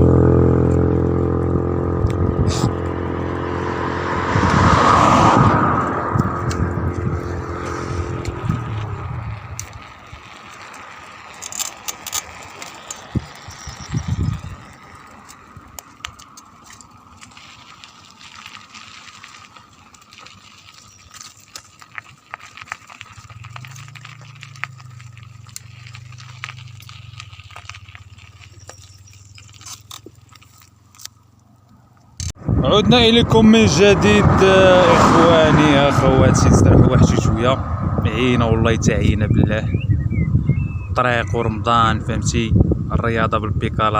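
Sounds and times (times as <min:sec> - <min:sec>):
wind and road noise: 0:00.0 - 0:43.9
bicycle clicks and rattles: 0:06.1 - 0:32.4.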